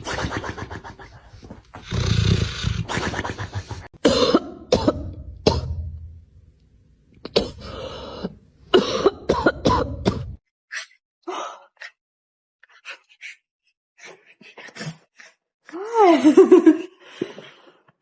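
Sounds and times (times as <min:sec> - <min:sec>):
person coughing: 0:03.0 - 0:05.8, 0:07.3 - 0:07.8, 0:08.7 - 0:10.4.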